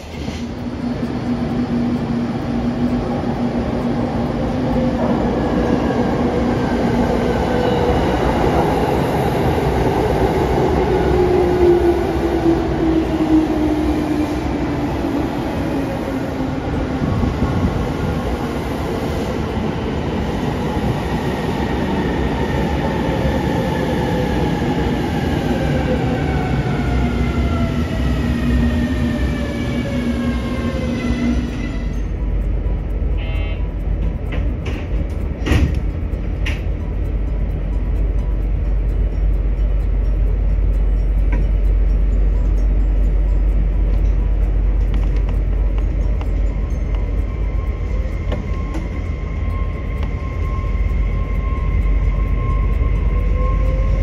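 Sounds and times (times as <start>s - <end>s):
train rumbling on rails: 0.0s - 54.0s
whining tones gliding down: 46.0s - 54.0s.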